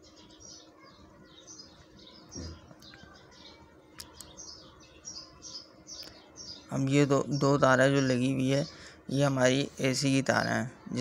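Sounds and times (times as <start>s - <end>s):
small birds chirping: 0.0s - 11.0s
sharp clicks: 3.9s - 4.4s.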